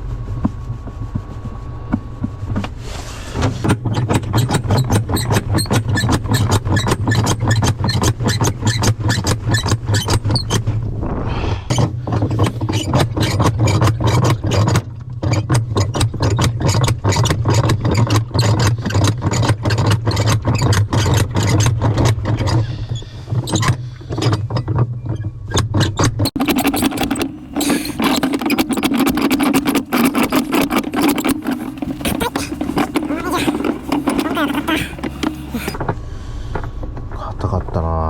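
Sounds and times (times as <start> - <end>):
rapid irregular clatter: 0.0 - 35.9
motor humming: 26.3 - 35.9.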